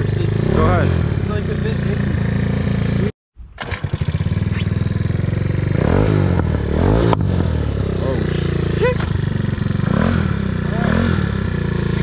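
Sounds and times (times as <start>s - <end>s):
moped engine putter: 3.6s - 5.1s.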